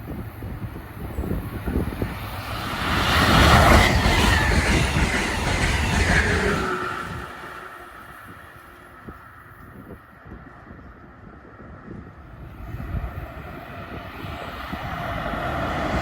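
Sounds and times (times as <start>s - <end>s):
train passing on rails: 0.0s - 16.0s.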